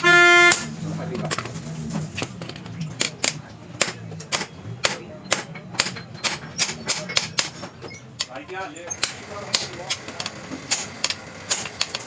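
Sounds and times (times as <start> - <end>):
hammer tapping on metal: 3.0 - 7.7.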